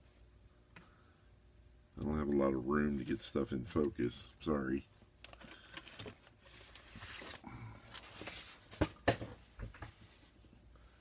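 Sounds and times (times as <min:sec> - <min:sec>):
plastic parts rustling and clicking: 0:05.2 - 0:09.3.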